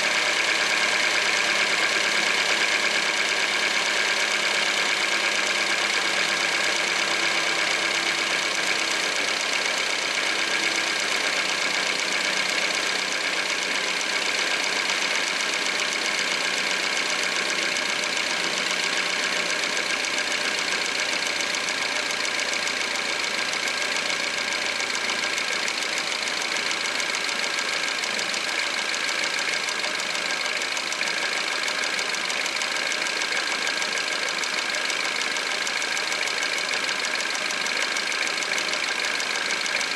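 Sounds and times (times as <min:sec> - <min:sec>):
car engine idling: 0:00.1 - 0:39.9
fast ticking rattle: 0:08.6 - 0:39.9.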